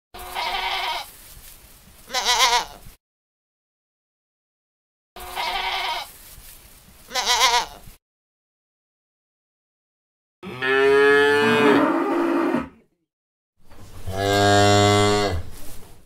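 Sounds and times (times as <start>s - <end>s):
lambs bleating: 0.2s - 1.1s, 2.1s - 2.8s, 5.2s - 6.1s, 7.1s - 7.8s.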